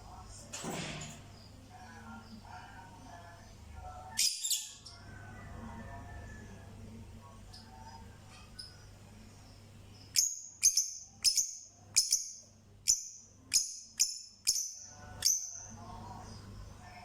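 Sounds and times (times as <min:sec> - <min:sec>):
bird chirping: 0:08.6 - 0:15.7.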